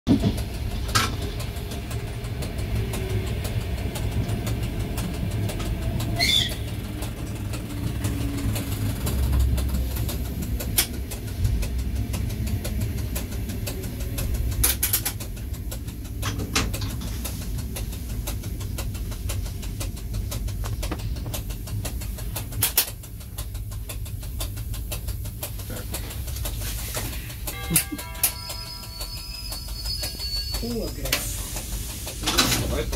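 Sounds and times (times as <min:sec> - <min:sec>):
train low rumble: 0:00.1 - 0:32.9
sharp clicks: 0:00.3 - 0:32.9
brake squeal: 0:06.1 - 0:07.1, 0:26.8 - 0:32.9.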